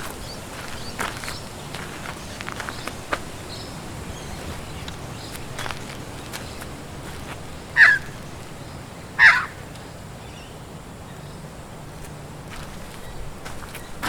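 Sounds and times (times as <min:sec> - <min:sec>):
bird calling: 0:00.0 - 0:10.5
wind in trees: 0:00.0 - 0:14.0.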